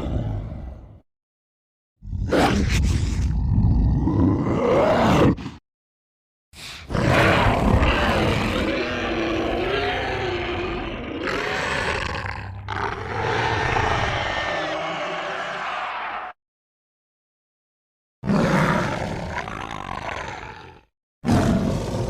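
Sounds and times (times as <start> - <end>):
monster growling: 2.0 - 5.6, 6.8 - 16.4, 18.2 - 22.0.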